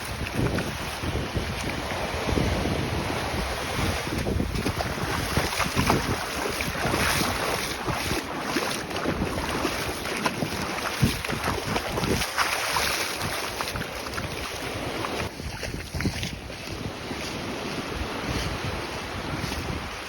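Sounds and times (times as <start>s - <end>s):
shallow water washing and splashing: 0.0s - 19.8s
wind buffeting microphone: 0.0s - 20.0s.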